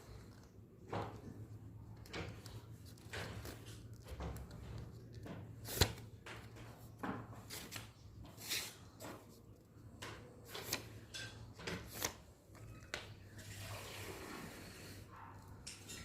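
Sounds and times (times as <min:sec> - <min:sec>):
paper rustling and creasing: 0:00.0 - 0:09.7
sharp paper snap: 0:05.6 - 0:06.1, 0:10.4 - 0:10.9, 0:11.7 - 0:12.3.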